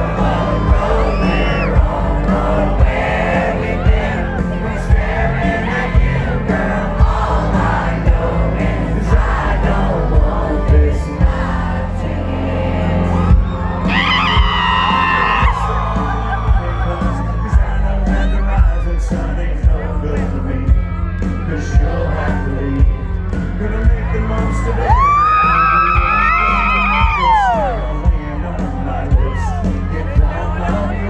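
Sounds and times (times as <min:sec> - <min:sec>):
loud voice singing close by: 0:00.0 - 0:04.7
crowd singing along: 0:00.0 - 0:31.0
live country band playing: 0:00.0 - 0:31.0
person singing: 0:00.0 - 0:31.0.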